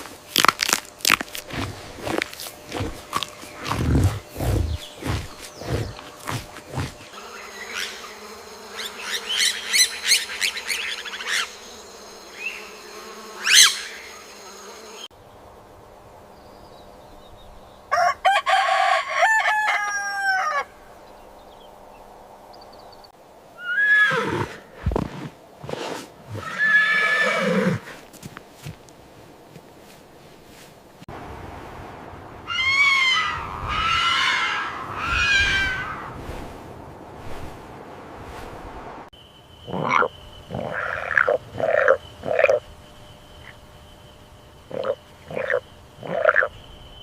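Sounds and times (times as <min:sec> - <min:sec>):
farm animal calls: 0:39.7 - 0:42.6, 0:44.7 - 0:46.5.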